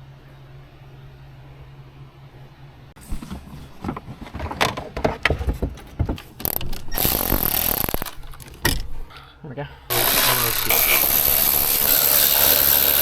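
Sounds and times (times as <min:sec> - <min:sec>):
car parts and tools clattering: 0:03.0 - 0:09.2.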